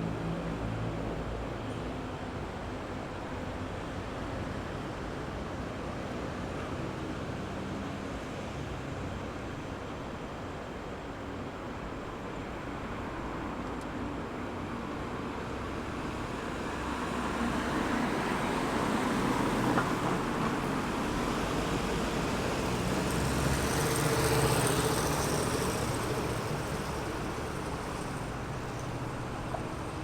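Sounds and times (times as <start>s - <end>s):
steady traffic hum: 0.0s - 30.0s
vehicles passing: 15.7s - 30.0s.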